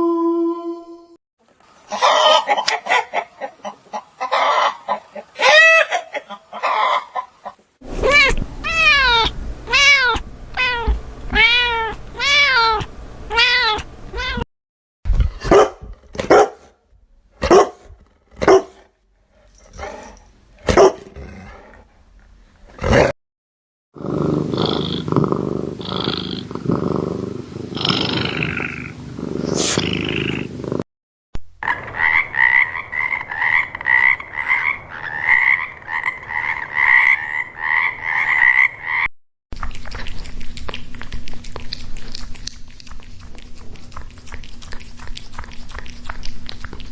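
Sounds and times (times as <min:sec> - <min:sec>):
cat meowing: 0:08.0 - 0:14.4
dog barking: 0:15.4 - 0:16.7, 0:17.4 - 0:18.8, 0:20.6 - 0:21.1
growling and roaring: 0:17.9 - 0:21.9, 0:22.7 - 0:23.1, 0:24.0 - 0:30.8
frog croaking: 0:31.6 - 0:39.1.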